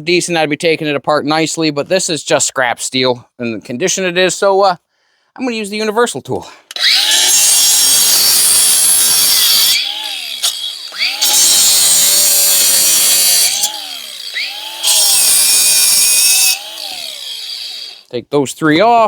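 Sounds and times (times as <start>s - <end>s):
power saw cutting metal: 6.7s - 18.1s
saw motor winding down and up: 6.7s - 18.1s.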